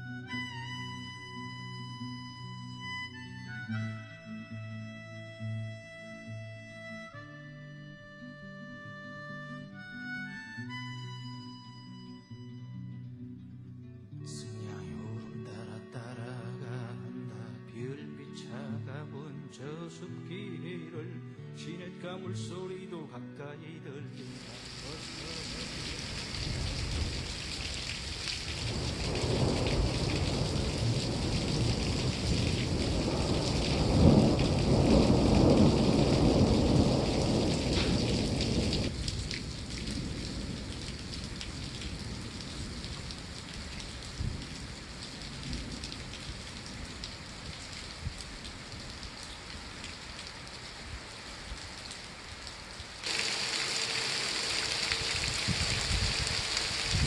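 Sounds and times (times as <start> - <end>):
steady rain falling: 24.2 - 57.0.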